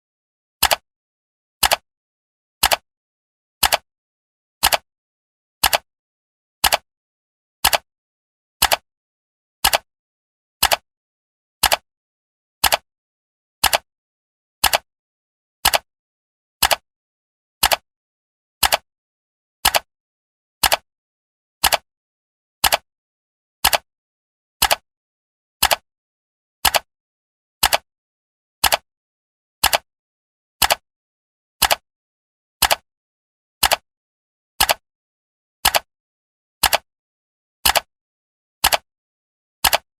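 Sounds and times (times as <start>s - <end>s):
clock ticking: 6.6s - 6.8s, 8.6s - 8.8s, 9.6s - 9.8s, 12.6s - 12.8s, 21.6s - 21.8s, 26.6s - 26.9s, 27.6s - 27.8s, 28.6s - 28.8s, 29.6s - 29.8s, 30.6s - 30.8s, 31.6s - 31.8s, 33.6s - 33.8s, 34.6s - 34.8s, 36.6s - 36.9s, 37.6s - 37.9s, 38.6s - 38.8s, 39.6s - 39.9s.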